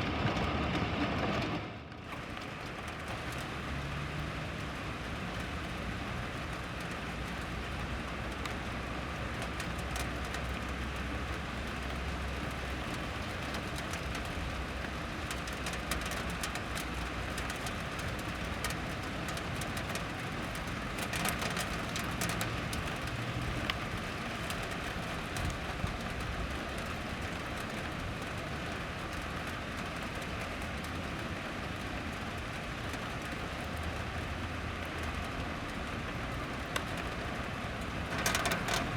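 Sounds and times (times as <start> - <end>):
low rumble: 0.0 - 2.1
rain falling: 0.0 - 38.9.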